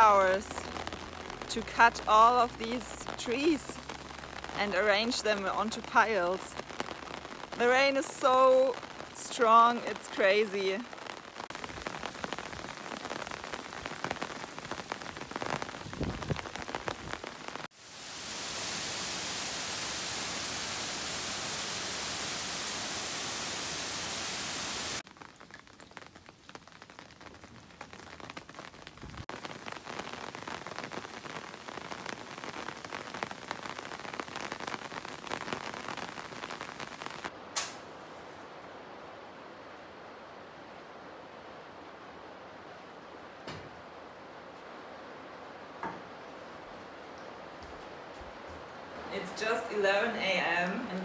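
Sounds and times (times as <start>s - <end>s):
heavy rain: 0.0s - 51.0s
sharp click: 37.6s - 37.8s.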